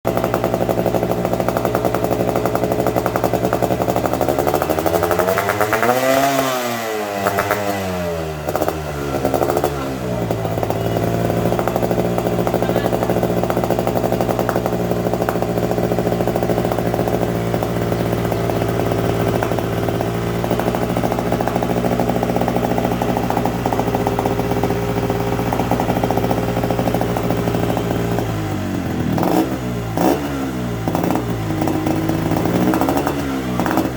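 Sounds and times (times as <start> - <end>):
two-stroke motorcycle engine revving: 0.1 - 33.9.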